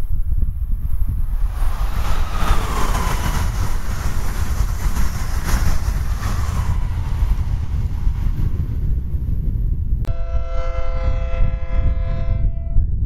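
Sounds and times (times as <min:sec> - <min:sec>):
high-speed train passing: 0:00.0 - 0:12.8.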